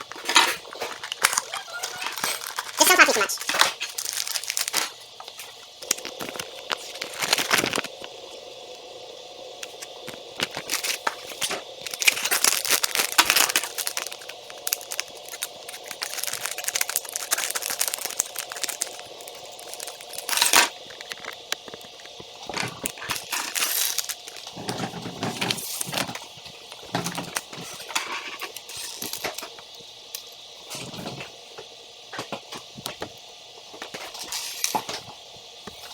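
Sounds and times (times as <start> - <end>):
faint steady hum: 0.0 - 35.9
plastic toy parts clicking: 11.8 - 21.3.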